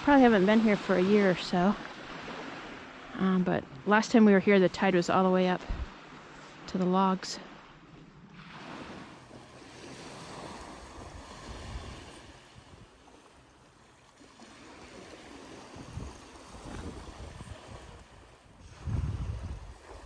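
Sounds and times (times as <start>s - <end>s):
sea waves washing on shore: 0.0s - 20.0s
wind gusting on microphone: 3.5s - 6.1s, 10.4s - 12.9s, 15.7s - 20.0s.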